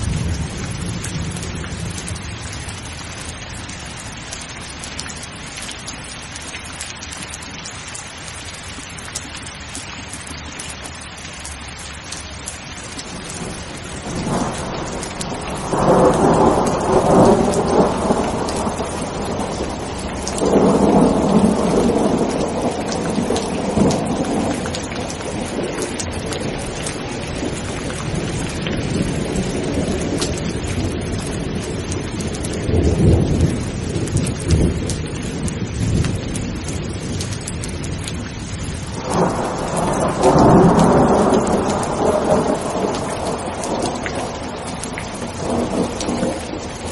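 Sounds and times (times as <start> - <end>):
rolling thunder: 0.0 - 2.9, 13.1 - 46.9
steady rain: 0.0 - 46.9.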